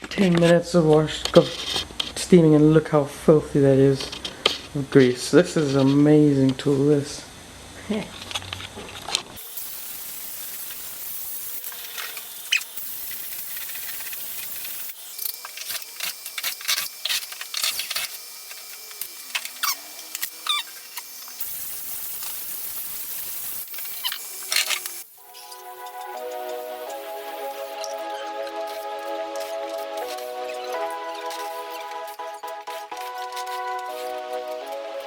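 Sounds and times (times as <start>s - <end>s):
steam cleaner hissing: 9.4s - 35.0s.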